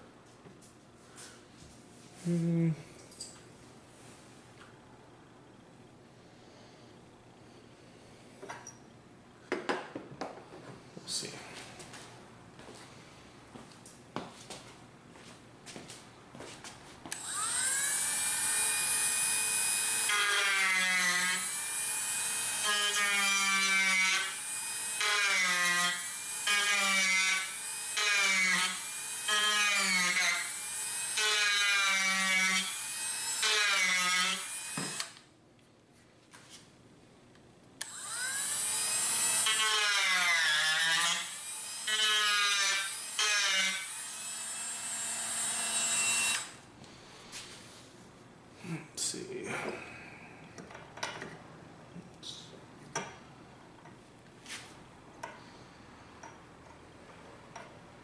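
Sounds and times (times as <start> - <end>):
rotary tool grinding wood: 17.1 - 35.2.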